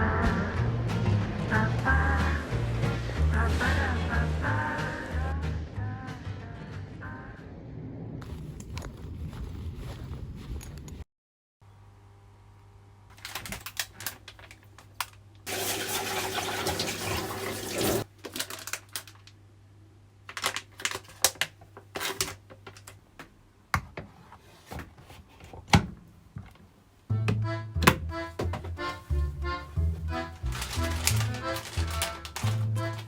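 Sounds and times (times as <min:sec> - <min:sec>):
water running from tap: 0:15.5 - 0:18.1.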